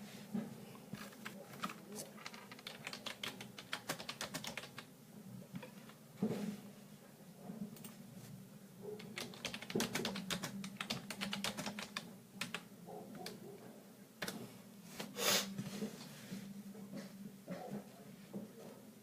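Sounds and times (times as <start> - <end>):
short hiss: 15.2 - 15.5.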